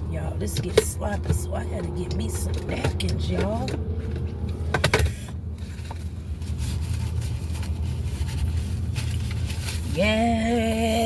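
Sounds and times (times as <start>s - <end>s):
packaging rustling and scraping: 3.4s - 11.0s.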